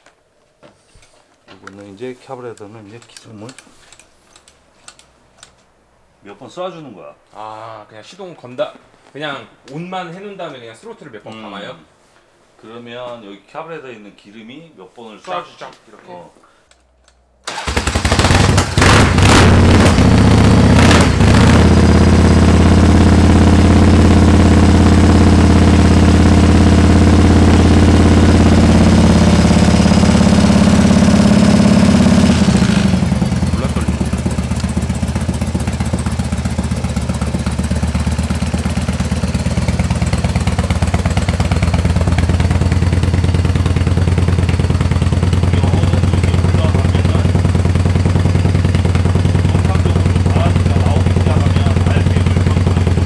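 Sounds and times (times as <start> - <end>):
motorcycle engine starting and idling: 17.4 - 53.0.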